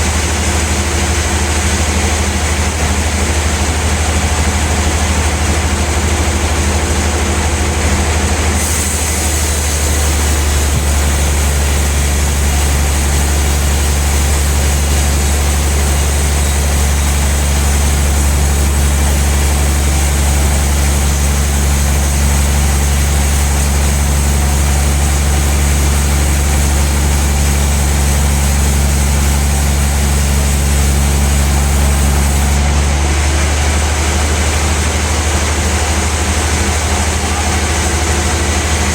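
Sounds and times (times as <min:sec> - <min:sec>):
bandsaw running with deep hum: 0:00.0 - 0:38.9
high hiss: 0:08.6 - 0:32.7.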